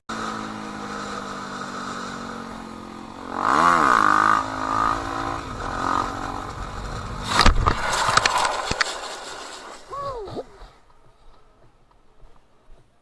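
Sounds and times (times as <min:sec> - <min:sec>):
motorcycle engine revving: 0:00.1 - 0:09.8
loud thump: 0:05.6 - 0:08.6.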